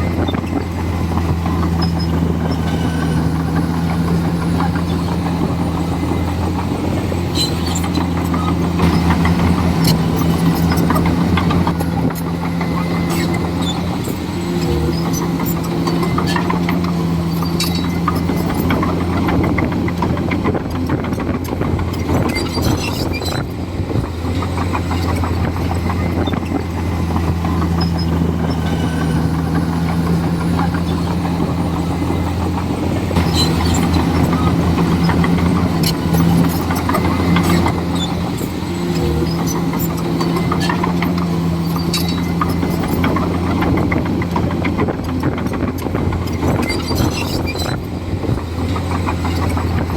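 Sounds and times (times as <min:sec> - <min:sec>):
bulldozer diesel engine: 0:00.0 - 0:49.9.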